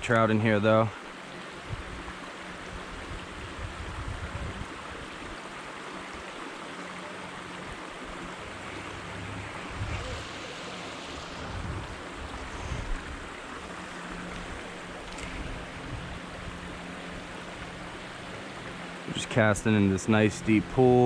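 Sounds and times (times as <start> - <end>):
creek water rushing: 0.0 - 21.0
low rumbles on microphone: 8.8 - 16.2.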